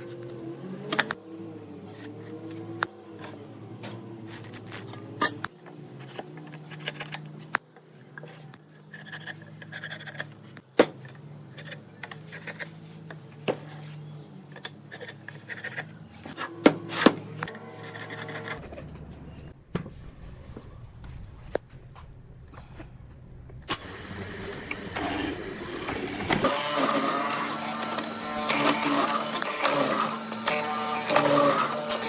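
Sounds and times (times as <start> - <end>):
rubbing or scraping on wood: 14.9 - 19.4.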